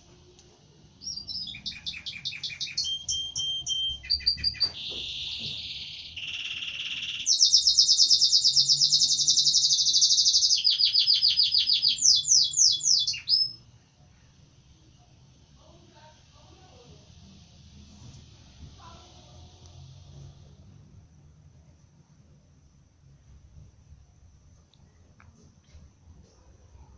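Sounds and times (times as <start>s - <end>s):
canary singing: 1.0s - 13.6s.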